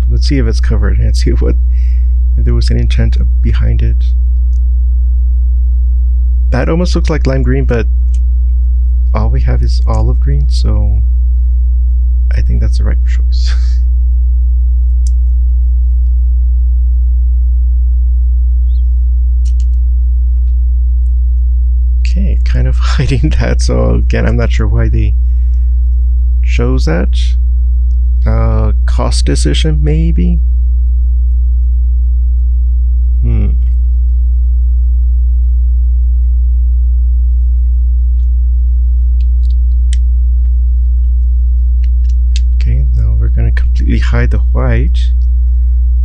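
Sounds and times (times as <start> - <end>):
low electrical hum: 0.0 - 46.0
vocal murmur: 12.3 - 13.8, 22.1 - 25.1, 28.2 - 30.3, 33.2 - 33.8.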